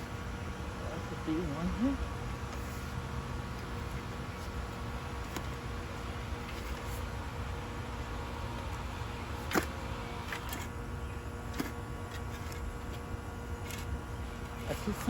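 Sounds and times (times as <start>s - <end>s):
knocks and scrapes in soil: 2.5s - 7.2s, 11.4s - 15.0s.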